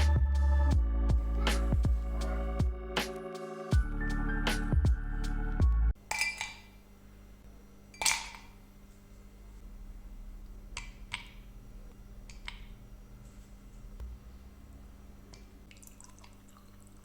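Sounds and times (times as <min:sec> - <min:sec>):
low steady hum: 0:00.0 - 0:03.2, 0:03.8 - 0:17.0
background music: 0:00.0 - 0:06.0
dishes clinking: 0:06.1 - 0:06.7, 0:08.0 - 0:08.6.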